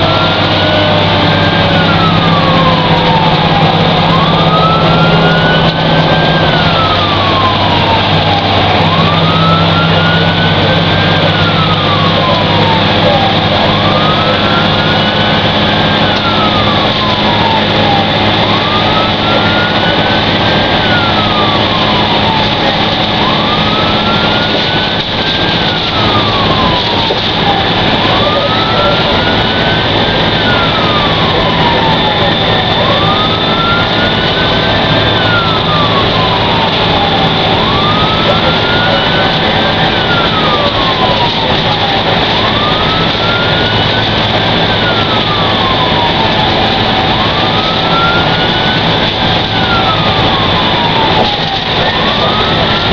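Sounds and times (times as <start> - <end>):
fire engine siren wailing: 0.0 - 52.9
truck engine drone: 0.0 - 52.9.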